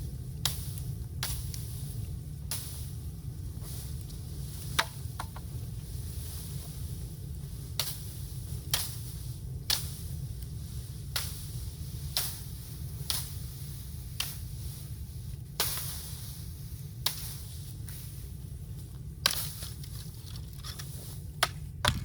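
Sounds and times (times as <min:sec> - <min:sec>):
low steady rumble: 0:00.0 - 0:22.0
bamboo cracking: 0:19.2 - 0:22.0.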